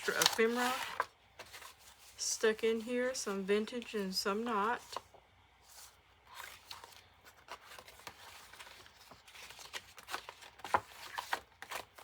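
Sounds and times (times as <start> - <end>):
paper rustling: 0.0 - 4.0, 5.7 - 12.0.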